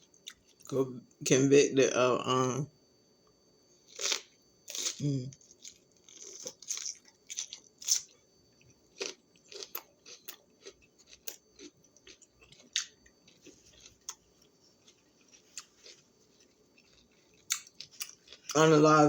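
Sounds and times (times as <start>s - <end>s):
crunchy vegetable chewing: 3.8s - 18.8s.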